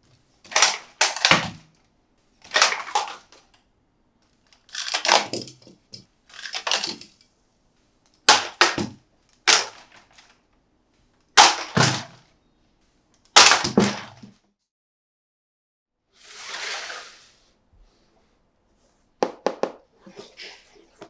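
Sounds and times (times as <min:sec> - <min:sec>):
packaging crackling: 0:04.4 - 0:05.6, 0:06.3 - 0:07.2.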